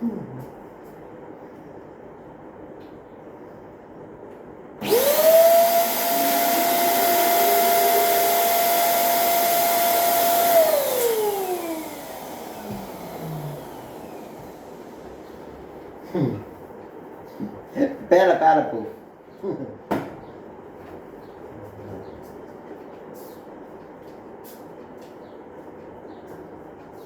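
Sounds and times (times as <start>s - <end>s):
balloon inflator motor whine: 4.8s - 15.4s.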